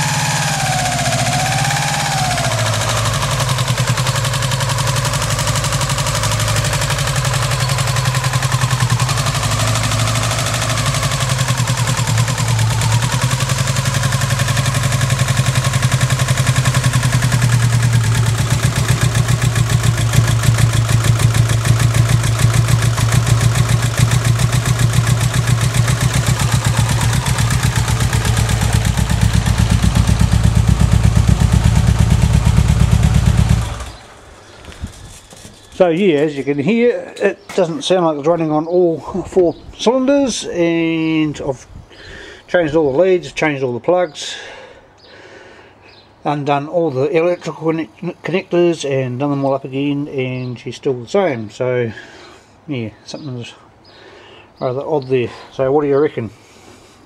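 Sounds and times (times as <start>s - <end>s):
car engine idling roughly: 0.0s - 34.1s.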